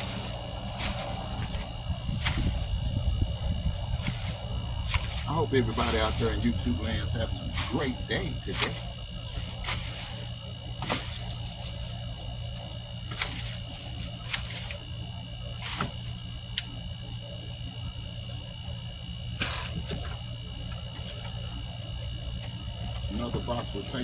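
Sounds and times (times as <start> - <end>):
rustling crackling handling noises: 0.0 - 16.2
steady low hum: 0.0 - 24.0.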